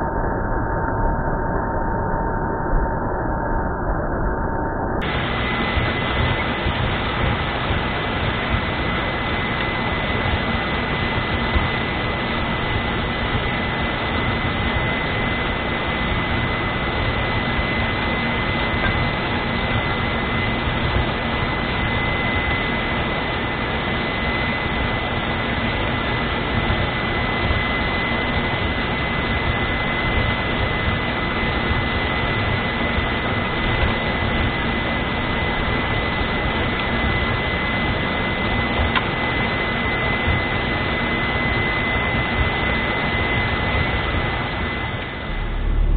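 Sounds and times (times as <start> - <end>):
constant high whine: 0.0 - 45.9
tractor diesel engine running: 42.2 - 45.9.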